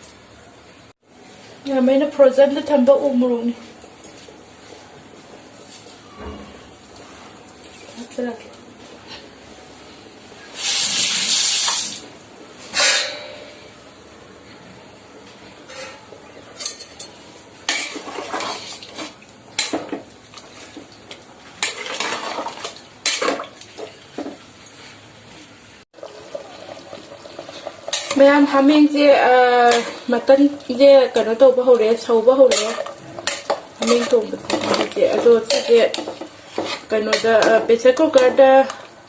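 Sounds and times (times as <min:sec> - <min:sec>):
loud hiss: 0:10.5 - 0:12.0
metal spoon scraping pot: 0:26.3 - 0:28.4, 0:29.5 - 0:30.2, 0:32.4 - 0:38.4.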